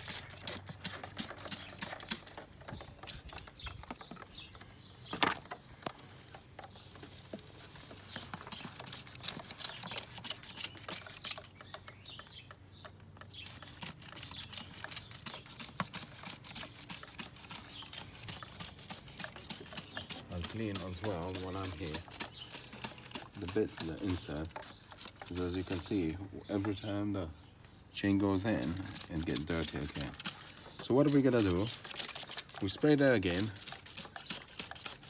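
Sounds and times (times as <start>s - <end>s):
brush scrubbing metal chain: 0.0s - 2.4s, 8.0s - 11.6s, 13.4s - 26.1s, 28.5s - 35.0s.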